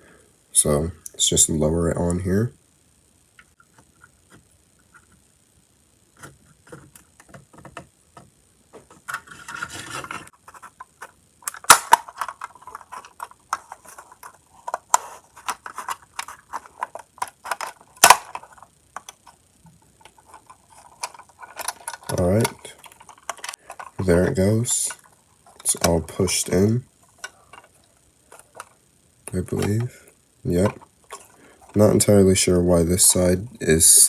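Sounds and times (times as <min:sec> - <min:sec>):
plastic clicks and rustling: 0:06.2 - 0:26.1, 0:27.1 - 0:29.9, 0:30.6 - 0:31.9
plastic shell snapping: 0:11.5 - 0:13.8, 0:14.7 - 0:19.2.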